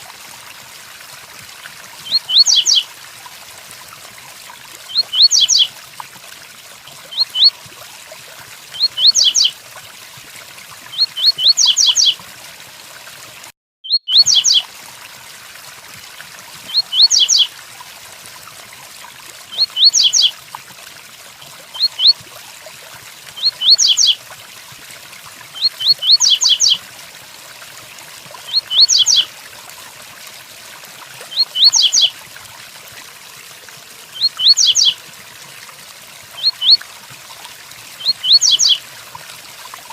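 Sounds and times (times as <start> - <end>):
bird singing whistled notes: 2.1 - 2.8, 4.9 - 5.7, 7.1 - 7.5, 8.8 - 9.5, 11.0 - 12.2, 13.9 - 14.6, 16.7 - 17.5, 19.6 - 20.3, 21.8 - 22.2, 23.4 - 24.2, 25.6 - 26.8, 28.5 - 29.3, 31.3 - 32.1, 34.2 - 35.0, 36.4 - 36.8, 38.0 - 38.8.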